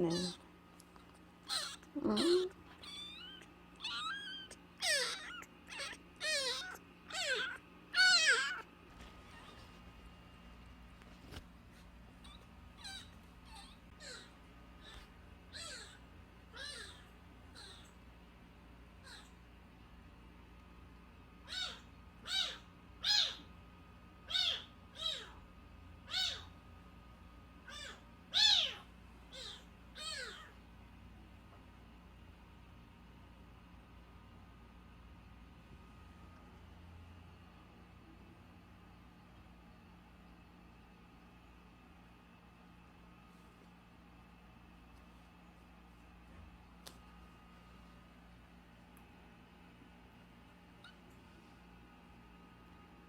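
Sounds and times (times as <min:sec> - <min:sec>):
kitten mewing: 0:00.0 - 0:00.4, 0:01.4 - 0:08.7, 0:12.2 - 0:18.0, 0:19.0 - 0:19.4, 0:21.4 - 0:23.4, 0:24.3 - 0:25.4, 0:26.1 - 0:26.5, 0:27.7 - 0:30.5.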